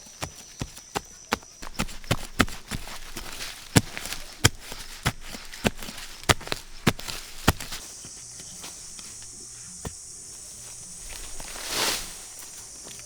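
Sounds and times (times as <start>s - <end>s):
steady high hiss: 7.8s - 13.0s.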